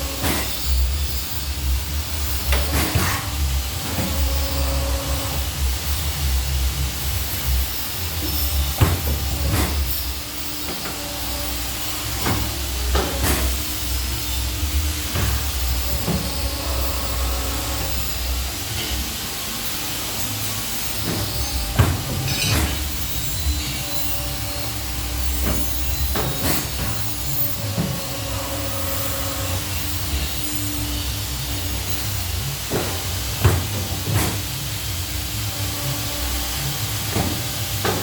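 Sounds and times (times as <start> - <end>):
machine motor hum: 0.0 - 38.0
machine knocks and clicks: 2.3 - 5.4, 8.6 - 10.0, 12.1 - 13.6, 15.0 - 16.4, 21.0 - 23.1, 25.4 - 29.3, 32.7 - 34.6, 36.6 - 38.0.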